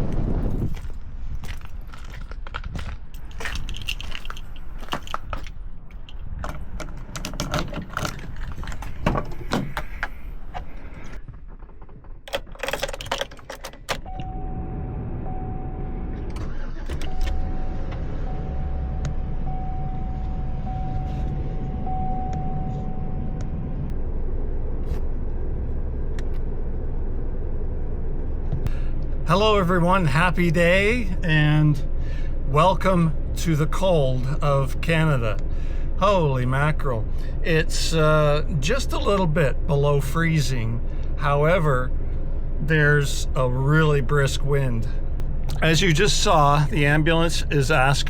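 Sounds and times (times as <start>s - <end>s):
keys rattling: 0.7s - 14.1s
engine starting and idling: 6.4s - 48.0s
steady high tone: 14.1s - 16.2s.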